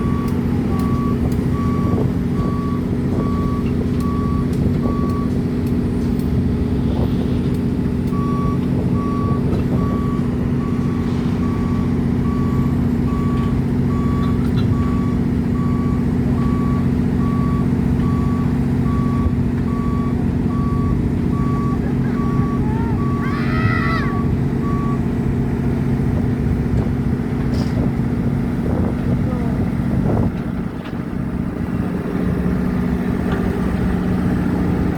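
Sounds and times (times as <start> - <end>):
travel alarm beeping: 0.0 - 5.3, 8.1 - 23.2
diesel engine running: 0.0 - 34.9.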